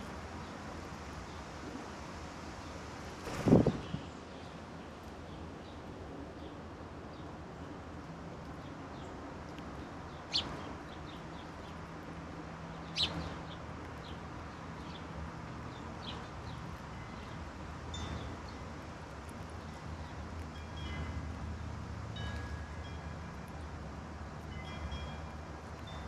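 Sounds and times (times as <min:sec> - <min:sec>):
sharp songbird calls: 0:12.8 - 0:13.3.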